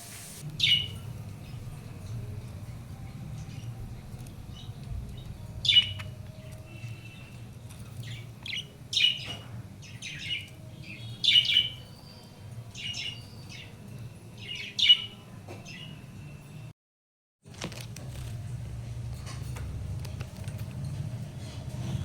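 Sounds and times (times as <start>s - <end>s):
budgerigars chirping and squawking: 8.0s - 12.0s.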